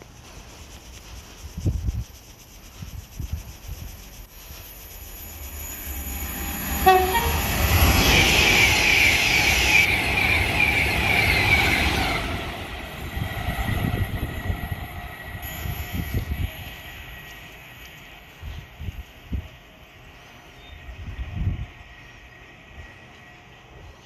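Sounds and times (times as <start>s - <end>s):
wheel and rail noise: 0.0s - 24.0s
train passing: 3.9s - 24.0s
train horn blast: 6.7s - 8.0s.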